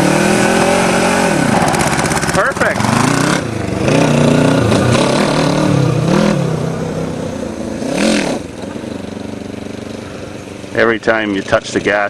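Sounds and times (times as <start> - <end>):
go-kart engine revving: 0.0 - 12.0.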